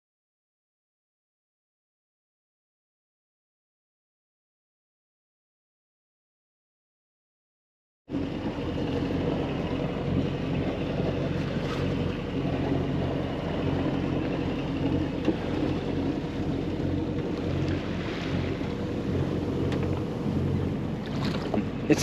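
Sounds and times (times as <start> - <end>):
boat engine running: 8.1 - 22.0
water noise: 8.1 - 22.0
wind: 8.1 - 22.0.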